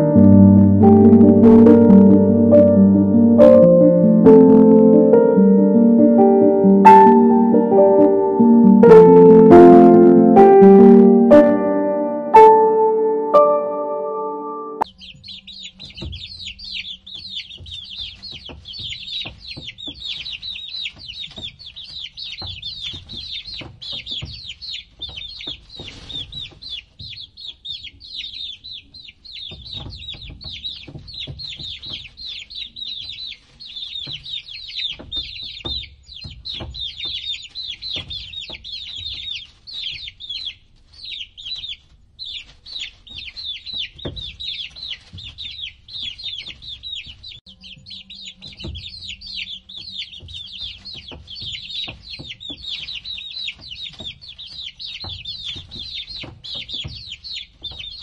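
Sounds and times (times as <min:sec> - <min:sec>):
high-pitched chirps: 0:00.0 - 0:14.8
chickens clucking: 0:15.0 - 0:58.0.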